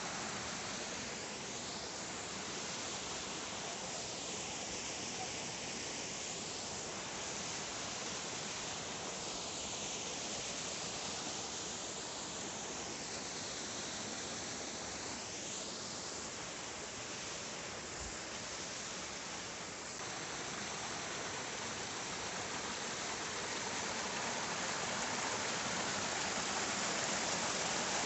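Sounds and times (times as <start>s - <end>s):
waterfall roaring: 19.2s - 28.0s.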